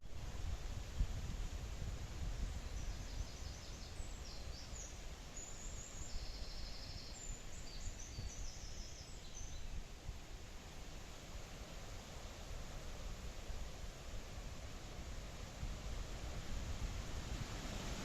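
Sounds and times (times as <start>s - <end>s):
songbird singing trills: 2.6s - 9.8s.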